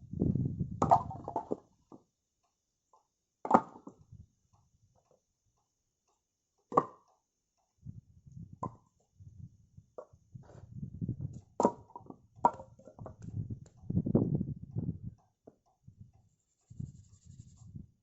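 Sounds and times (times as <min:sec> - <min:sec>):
axe chopping firewood: 0:03.5 - 0:04.0, 0:06.7 - 0:07.1, 0:11.6 - 0:12.9.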